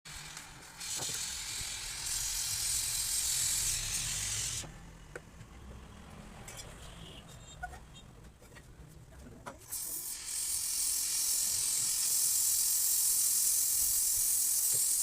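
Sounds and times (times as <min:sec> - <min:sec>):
pressurised gas hissing: 0:00.2 - 0:04.7, 0:09.7 - 0:15.0.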